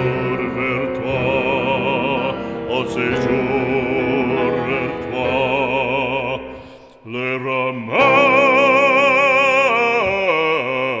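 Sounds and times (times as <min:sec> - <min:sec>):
operatic singing with vibrato: 0:00.0 - 0:11.0.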